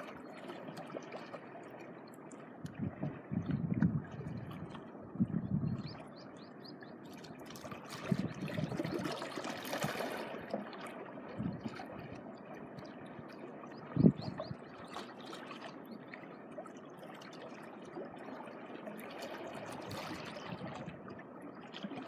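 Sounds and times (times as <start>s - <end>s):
small waves washing over shore: 7.0s - 22.0s.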